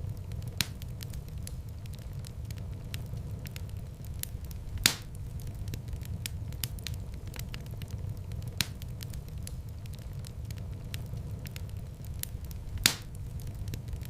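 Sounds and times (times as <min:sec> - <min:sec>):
low rumble of flame: 0:00.0 - 0:14.0
wood fire crackling: 0:00.0 - 0:14.0
sharp pop of fire: 0:04.2 - 0:05.2, 0:12.8 - 0:13.8.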